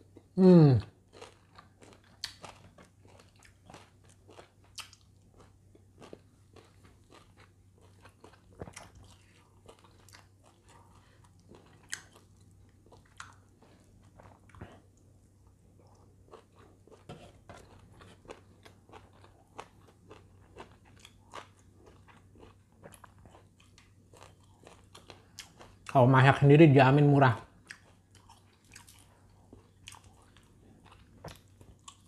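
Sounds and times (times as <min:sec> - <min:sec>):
chewing and crunching food: 0:00.0 - 0:26.4, 0:27.0 - 0:32.0
person humming mmm: 0:00.3 - 0:00.9.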